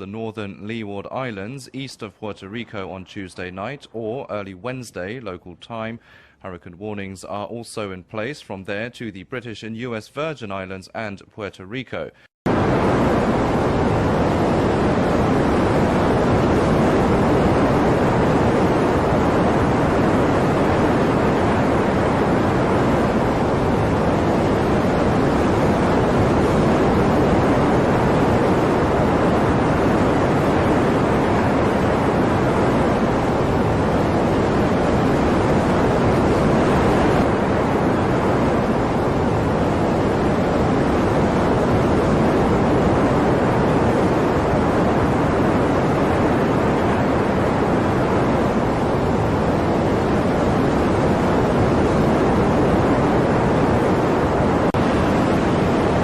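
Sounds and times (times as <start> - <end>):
strong storm wind rushing: 12.5 - 56.0.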